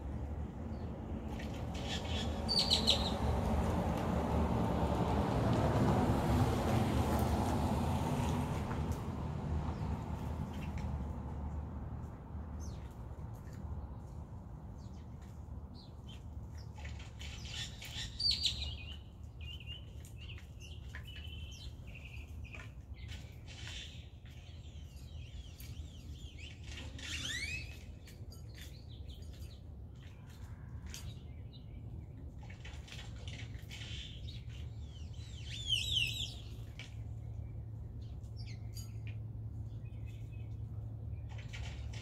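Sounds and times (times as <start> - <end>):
birds chirping: 0.7 - 3.3.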